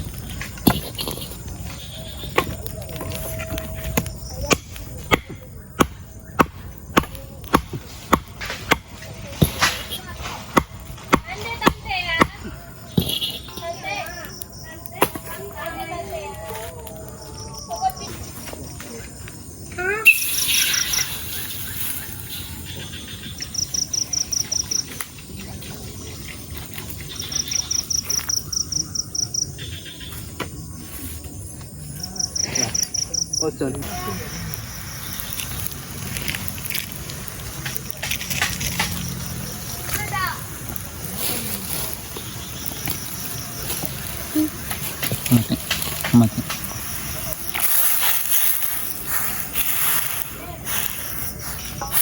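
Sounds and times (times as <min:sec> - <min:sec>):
insect chirping: 0:00.0 - 0:52.0
wood being chopped: 0:03.9 - 0:13.5.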